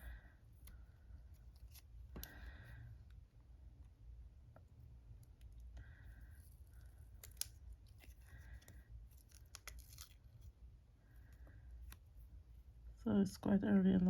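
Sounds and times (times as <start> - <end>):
shrink-wrap crinkling: 6.5 - 10.5.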